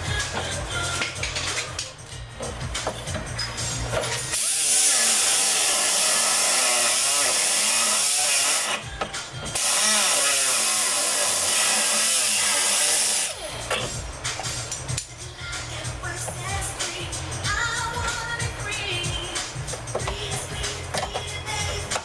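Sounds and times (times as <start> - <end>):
power tool cutting sheet metal: 4.3 - 8.9, 9.5 - 13.5.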